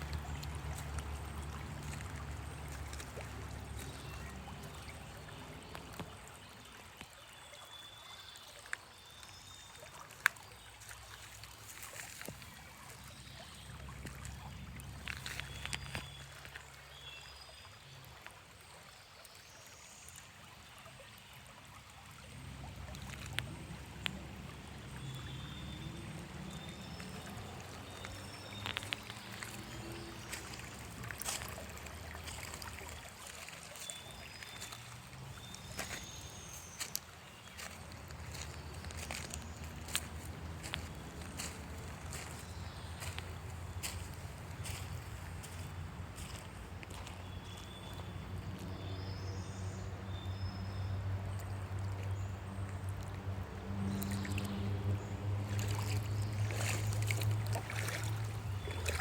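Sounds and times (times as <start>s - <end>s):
trickle of running water: 0.0s - 48.8s, 50.9s - 59.0s.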